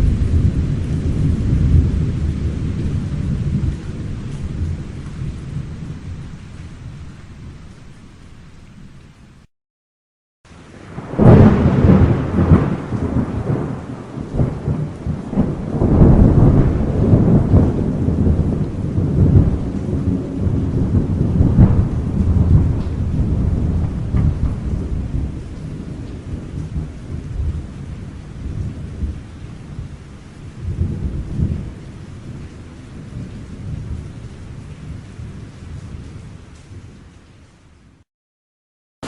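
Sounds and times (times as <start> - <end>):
thunder rolling: 0.0 - 6.3, 10.7 - 29.9
steady rain: 0.0 - 9.5, 10.5 - 38.1.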